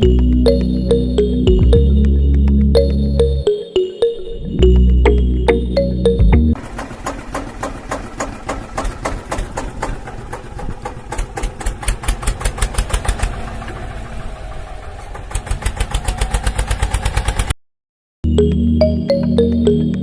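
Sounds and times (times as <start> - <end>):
miniature engine chugging: 6.6 - 17.5.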